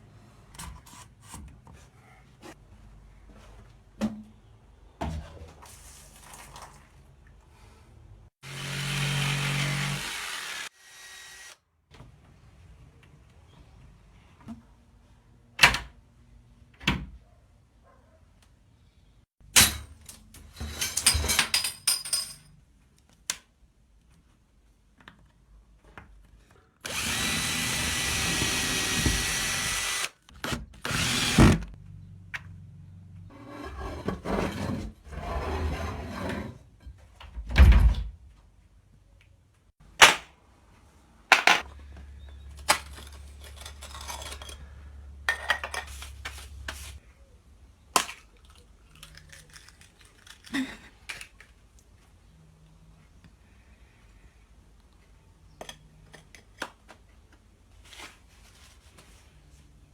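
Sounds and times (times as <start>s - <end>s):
motorised tool running: 30.9s - 31.7s.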